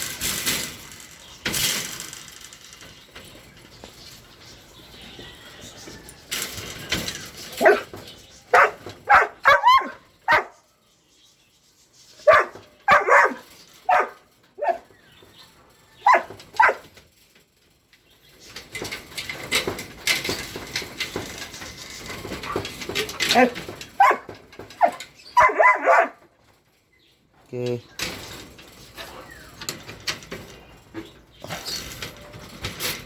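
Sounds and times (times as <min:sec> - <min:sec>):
clicks and rustling: 0:00.0 - 0:10.5, 0:12.2 - 0:33.0
dog barking: 0:07.6 - 0:07.9, 0:08.5 - 0:10.6, 0:12.2 - 0:14.8, 0:16.0 - 0:16.9, 0:23.4 - 0:26.2.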